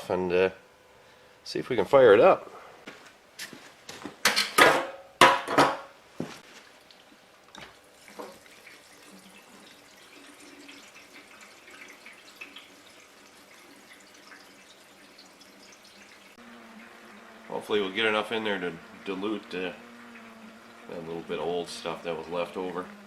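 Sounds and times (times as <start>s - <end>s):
gasoline trickling into a tank: 6.4s - 22.6s.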